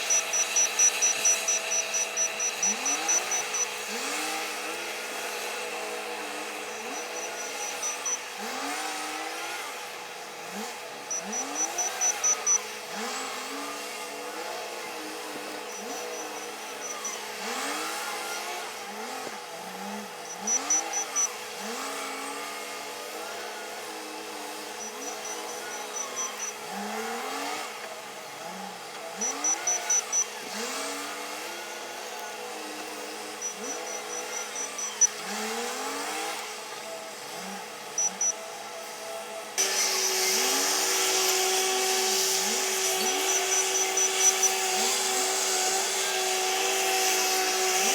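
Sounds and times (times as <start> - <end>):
rapid high-pitched beeping: 0.0 - 9.6, 10.4 - 13.1, 20.2 - 21.4, 29.2 - 31.1, 33.1 - 35.6, 38.0 - 38.4, 41.1 - 45.3
wheel loader engine revving: 0.0 - 47.9.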